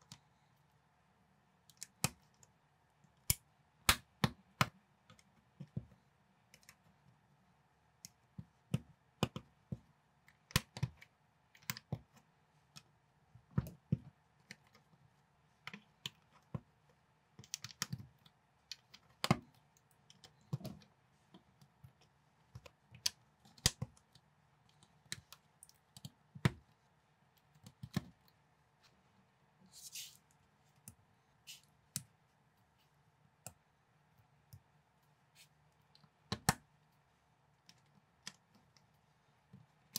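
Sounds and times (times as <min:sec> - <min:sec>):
soft hiss: 0:28.8 - 0:31.8.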